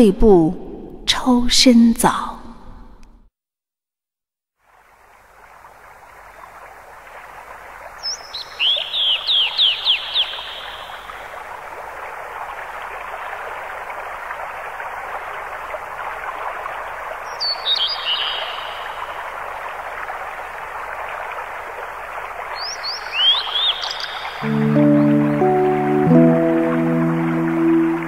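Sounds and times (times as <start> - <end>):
outdoor background noise: 4.6 - 28.0
bird calling high notes: 23.2 - 28.0.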